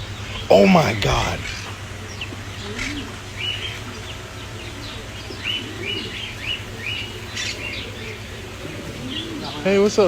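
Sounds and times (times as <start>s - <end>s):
steady low hum: 0.0s - 9.5s
birds chirping: 0.0s - 10.0s.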